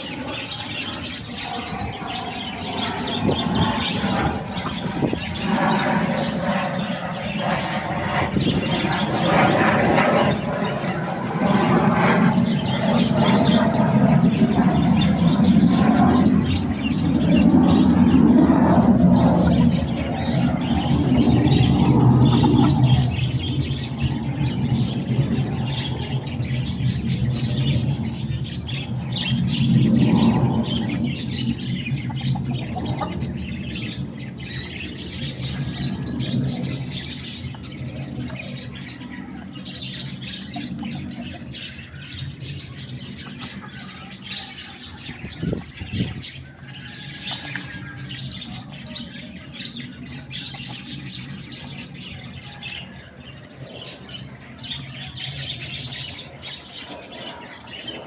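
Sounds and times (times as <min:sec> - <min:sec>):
low rumble: 0:01.2 - 0:39.0
chickens squawking: 0:30.8 - 0:33.4.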